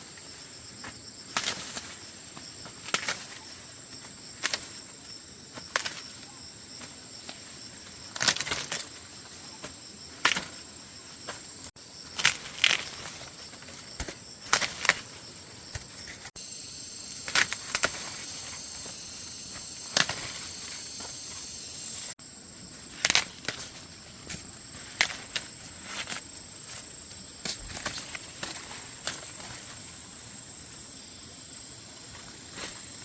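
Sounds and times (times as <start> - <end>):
insects droning: 0.0 - 33.0
sharp snaps and cracks: 1.3 - 2.0, 2.6 - 3.6, 4.3 - 4.8, 5.5 - 7.5, 8.1 - 9.0, 10.2 - 10.6, 12.1 - 16.3, 17.1 - 18.6, 19.8 - 21.1, 22.9 - 26.3.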